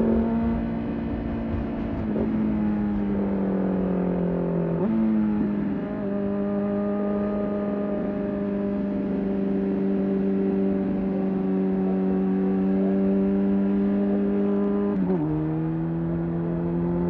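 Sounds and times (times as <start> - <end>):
motorcycle engine running: 0.0 - 6.4.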